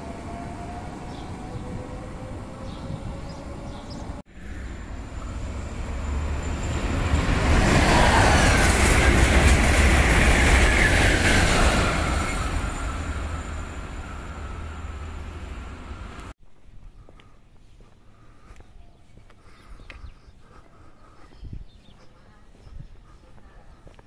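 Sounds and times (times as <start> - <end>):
electric train passing: 0.0 - 16.3.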